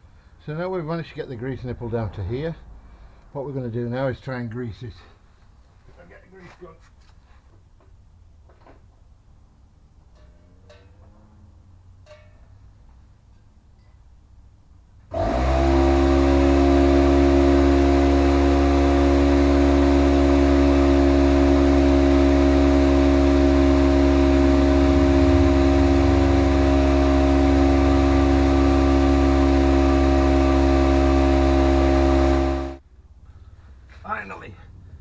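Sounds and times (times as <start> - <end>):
air compressor motor running: 15.1 - 32.8.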